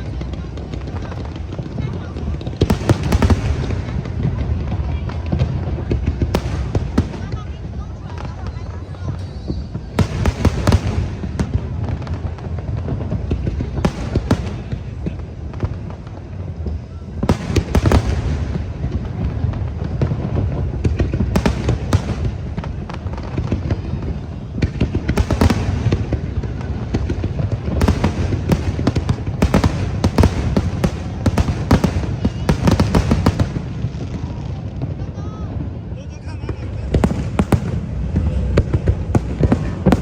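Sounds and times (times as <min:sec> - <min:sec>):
fireworks bangs and crackles: 0:00.0 - 0:40.0
steady low rumble: 0:10.8 - 0:40.0.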